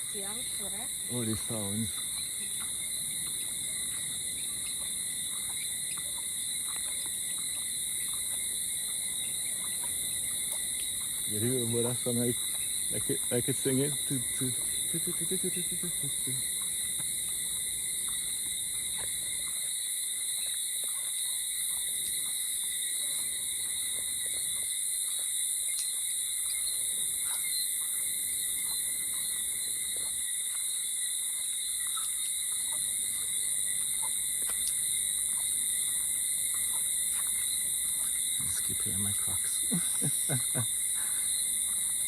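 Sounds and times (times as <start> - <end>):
insects and frogs chorus: 0.0 - 42.0
faint ticks: 1.5 - 22.4, 23.0 - 26.6, 31.3 - 38.2.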